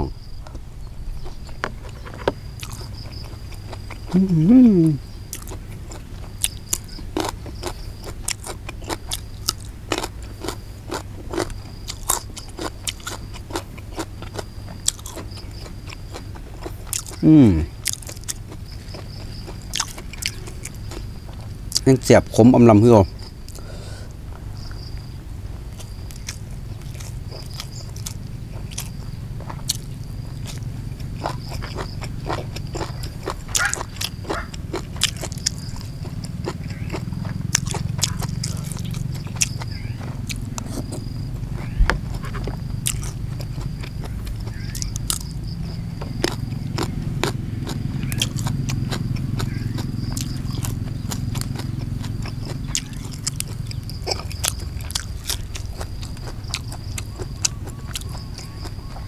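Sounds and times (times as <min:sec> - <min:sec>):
wet chewing and smacking: 0:00.5 - 0:04.3, 0:05.3 - 0:17.2, 0:17.8 - 0:22.1, 0:24.6 - 0:59.0.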